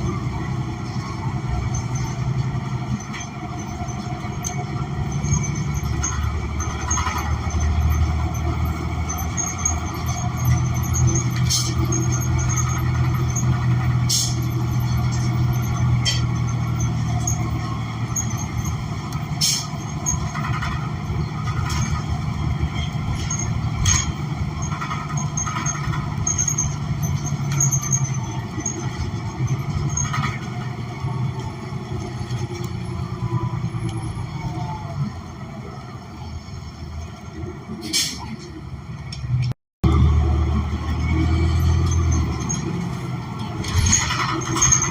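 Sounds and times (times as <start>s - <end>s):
bus engine low drone: 0.0s - 44.9s
sharp clicks and rattles: 1.7s - 32.9s, 41.8s - 44.9s.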